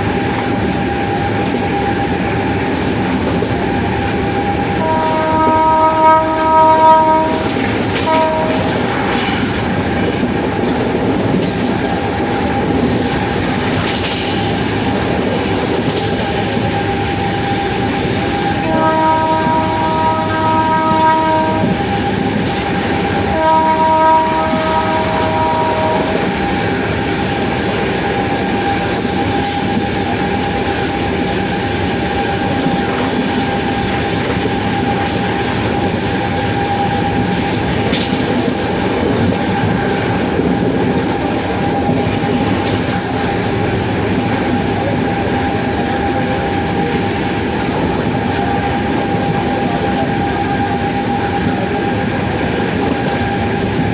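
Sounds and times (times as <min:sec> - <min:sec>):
train rumble: 0:00.0 - 0:53.9
train horn chord: 0:04.7 - 0:09.6, 0:18.4 - 0:22.1, 0:23.0 - 0:26.7.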